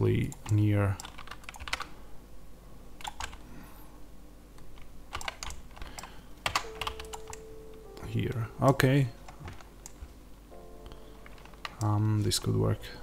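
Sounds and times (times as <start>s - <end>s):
faint low hum: 0.0s - 13.0s
keyboard and mouse clicks: 0.2s - 1.9s, 3.0s - 3.4s, 4.6s - 7.5s, 8.3s - 10.2s, 10.8s - 12.6s.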